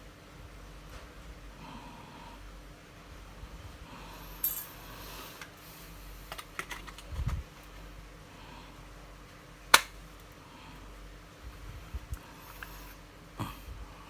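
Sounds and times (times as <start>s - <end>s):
sharp loud click: 9.7s - 10.0s.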